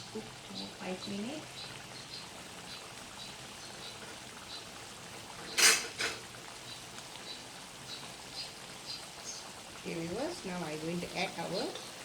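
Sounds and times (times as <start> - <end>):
paste simmering in a pan: 0.0 - 12.0.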